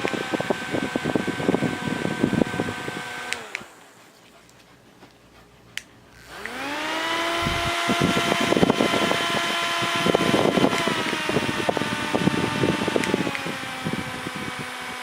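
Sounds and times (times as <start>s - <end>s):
fan switch click: 0.0s - 0.4s, 3.2s - 3.7s, 5.8s - 6.6s, 10.3s - 11.5s, 12.8s - 13.6s
uneven rattling buzz: 0.0s - 4.4s, 5.7s - 15.0s
small fan motor whining: 0.0s - 15.0s.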